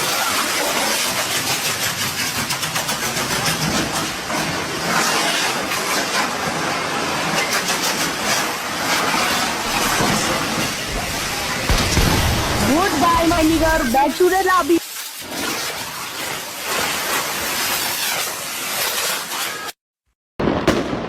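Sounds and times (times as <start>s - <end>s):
fireworks crackling and hissing: 0.0s - 19.8s, 20.4s - 21.0s
sharp firework cracks: 3.0s - 14.0s, 20.4s - 21.0s.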